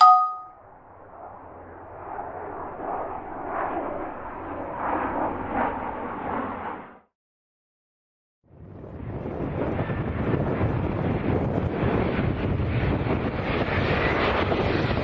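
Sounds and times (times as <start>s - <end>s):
brief loud tone: 0.0s - 0.5s
airliner engine noise: 1.0s - 7.0s, 9.0s - 15.0s.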